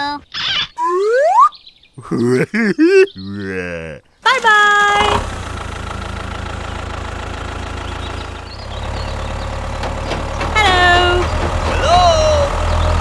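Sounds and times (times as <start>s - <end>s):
tractor engine idling: 4.2s - 13.0s.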